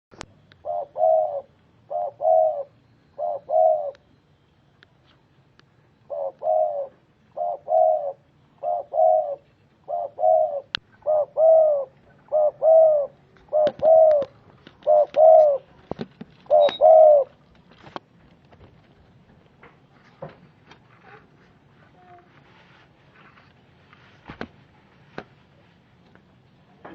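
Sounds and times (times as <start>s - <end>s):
dove cooing: 0.5s - 4.1s, 6.0s - 17.4s.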